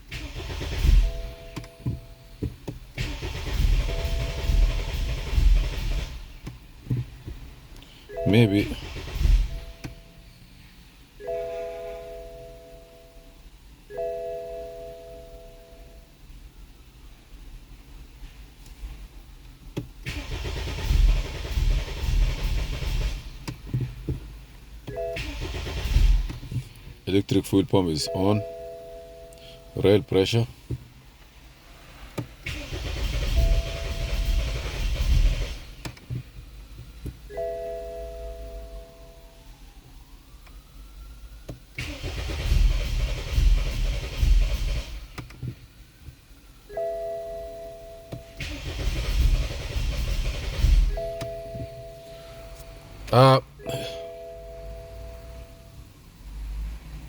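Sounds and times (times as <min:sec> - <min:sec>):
engine cranking without starting: 0:00.0 - 0:06.5, 0:08.2 - 0:10.0, 0:20.0 - 0:27.4, 0:32.1 - 0:37.5, 0:41.7 - 0:45.4, 0:48.1 - 0:55.5.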